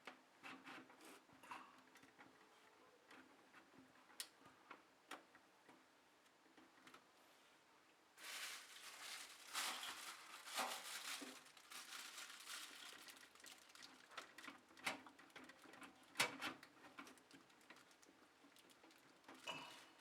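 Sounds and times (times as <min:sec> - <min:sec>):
packaging rustling and crinkling: 0:08.2 - 0:14.9.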